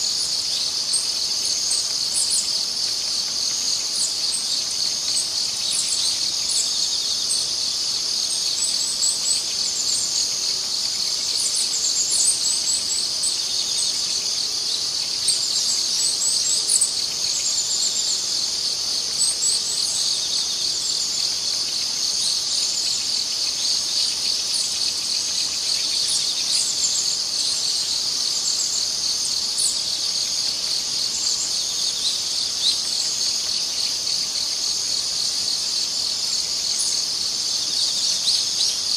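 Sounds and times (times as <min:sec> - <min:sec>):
insect chorus: 0:00.0 - 0:38.9.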